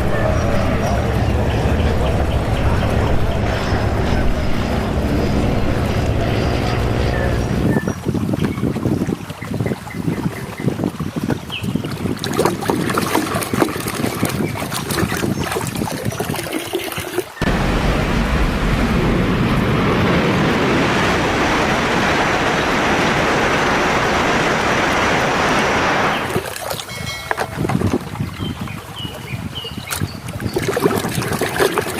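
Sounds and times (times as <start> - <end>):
running water rushing: 0.0 - 31.9
water splashing and dripping: 6.8 - 31.9.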